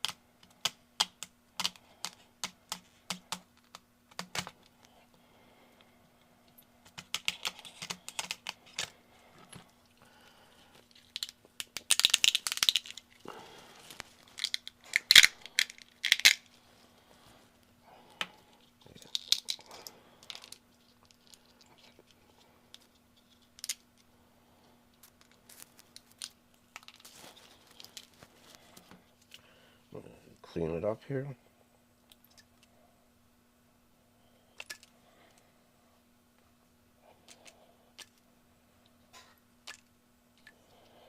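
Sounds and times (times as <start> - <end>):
hard plastic parts clicking and scraping: 6.8 - 9.7.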